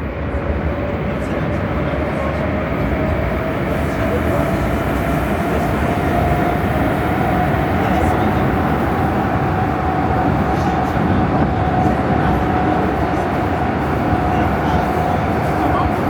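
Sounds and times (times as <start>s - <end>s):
metro train rumbling in tunnel: 0.0s - 16.0s.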